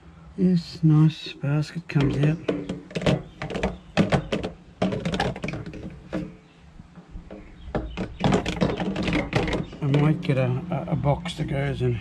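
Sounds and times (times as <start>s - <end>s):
plastic basket clicking and knocking: 2.0s - 6.3s, 7.3s - 10.2s.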